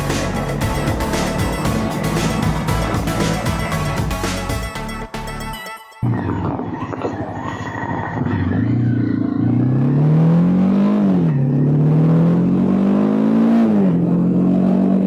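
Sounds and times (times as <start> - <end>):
motorcycle engine accelerating: 0.0 - 4.8, 8.4 - 15.0.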